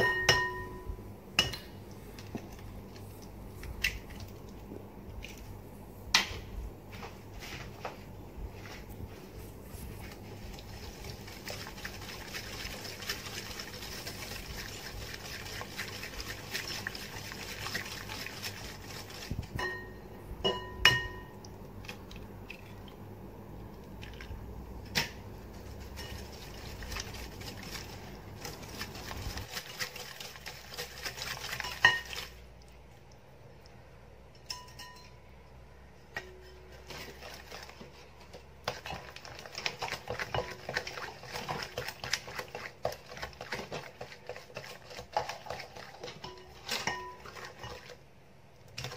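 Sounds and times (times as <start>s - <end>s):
whisk clinking against bowl: 0.0s - 1.7s, 11.4s - 21.4s, 25.8s - 26.9s, 28.7s - 32.4s, 34.5s - 35.2s, 38.7s - 47.9s
whisk swishing batter: 7.3s - 19.9s, 25.4s - 32.6s, 36.5s - 48.1s.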